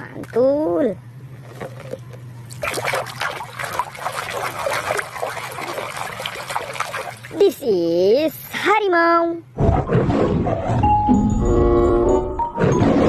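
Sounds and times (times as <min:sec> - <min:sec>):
water splashing and trickling: 0:01.5 - 0:07.8.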